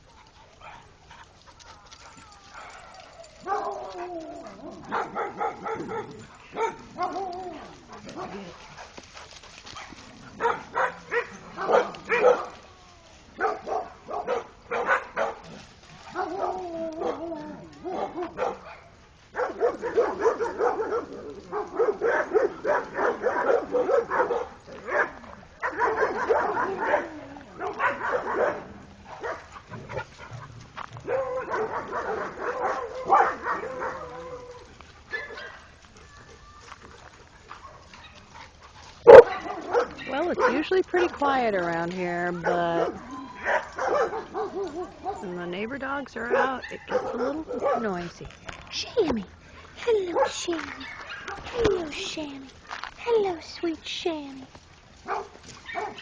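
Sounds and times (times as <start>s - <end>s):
dogs barking: 0.0s - 12.6s, 13.4s - 35.8s, 37.3s - 41.5s, 42.2s - 48.2s, 49.8s - 52.2s, 55.0s - 56.0s
dogs whining: 1.6s - 8.6s, 16.1s - 18.5s.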